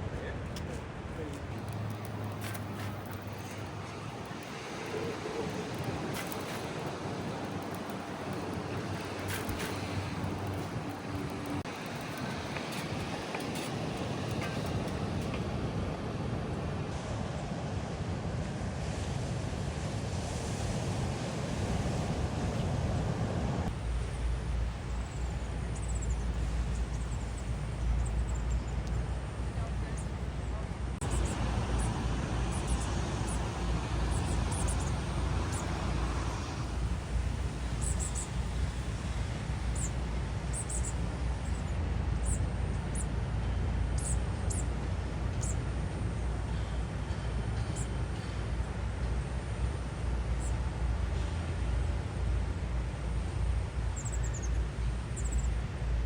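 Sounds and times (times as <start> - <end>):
wind rumbling on microphone: 0.0 - 46.5
small birds chirping: 24.9 - 33.5, 34.1 - 36.0, 37.6 - 38.8, 39.7 - 43.1, 53.9 - 55.6.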